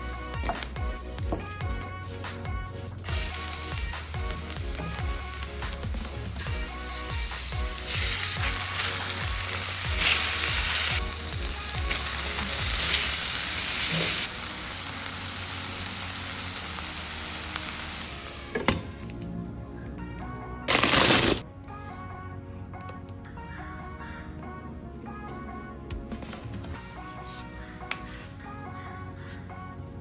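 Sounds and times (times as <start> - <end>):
chicken sizzling in a pan: 3.1 - 19.0.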